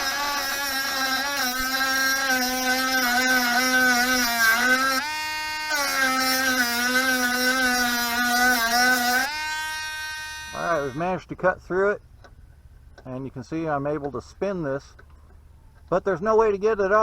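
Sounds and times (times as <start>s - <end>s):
rotary tool cutting: 0.0s - 11.0s.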